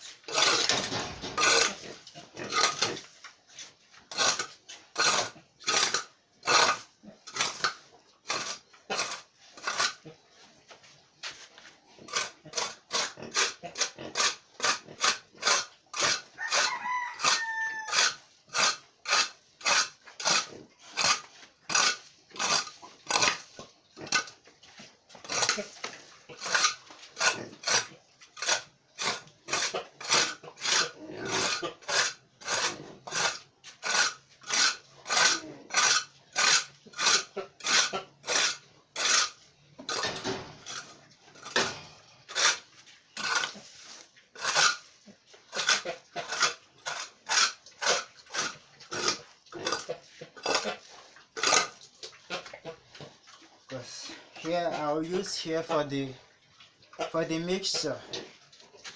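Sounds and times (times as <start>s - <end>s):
hand tool scraping floor: 0.0s - 6.8s
rooster crowing: 16.4s - 18.2s.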